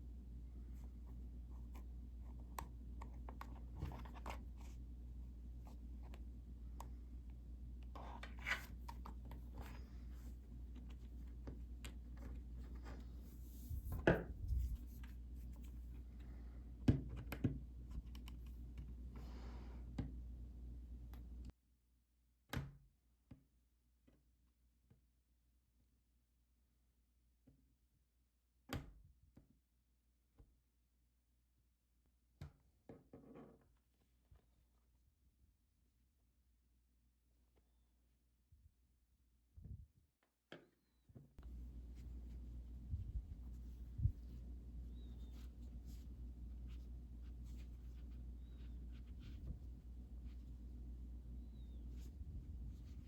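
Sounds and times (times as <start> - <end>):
hands working yarn through mesh: 41.4 - 53.0
steady low hum: 41.4 - 53.0.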